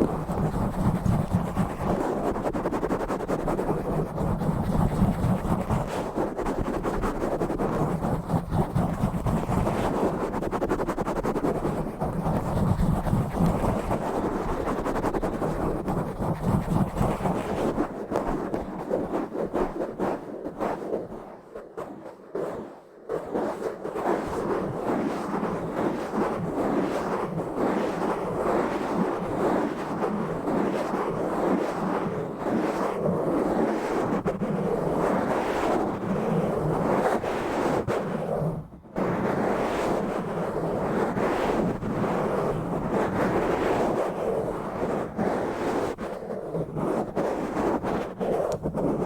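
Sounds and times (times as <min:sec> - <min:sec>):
fingers scratching a microphone: 0:00.0 - 0:21.2, 0:32.5 - 0:49.0.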